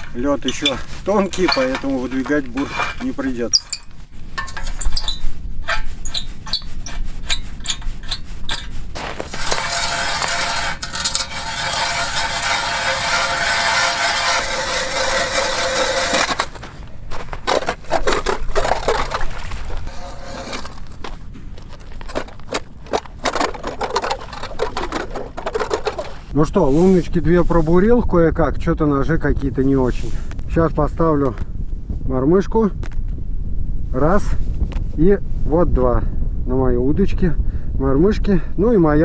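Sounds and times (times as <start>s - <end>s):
ice auger scraping and grinding: 0.0s - 27.0s.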